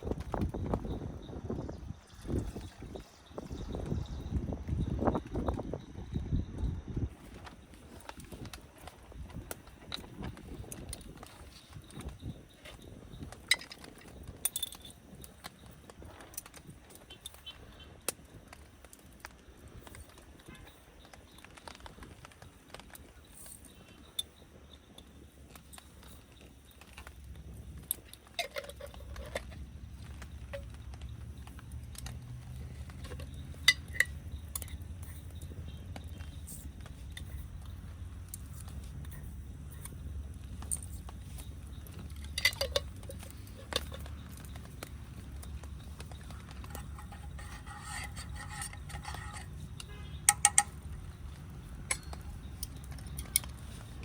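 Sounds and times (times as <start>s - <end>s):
metal cookware clinking: 46.3s - 51.1s.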